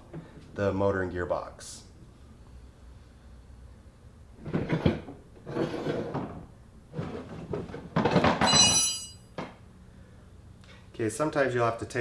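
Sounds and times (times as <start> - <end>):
short ringing clink: 8.5 - 9.3.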